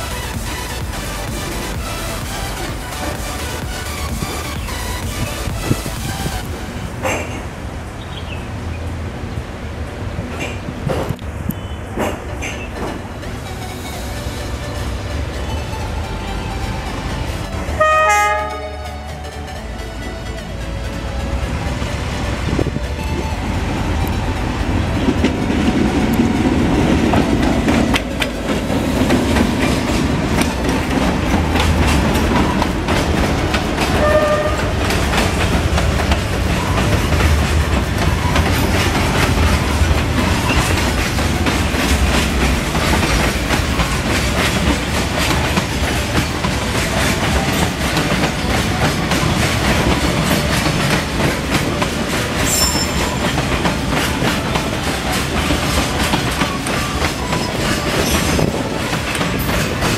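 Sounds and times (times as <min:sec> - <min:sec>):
freight train rumble: 0:00.0 - 0:59.9
wheels clattering over rail joints: 0:22.4 - 0:59.9.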